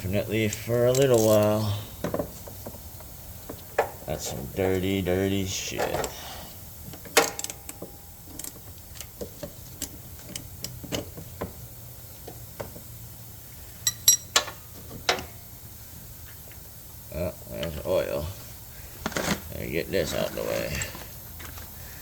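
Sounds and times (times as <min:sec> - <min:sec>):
metal tools clinking: 0:00.3 - 0:02.0, 0:07.2 - 0:11.0, 0:13.8 - 0:14.6.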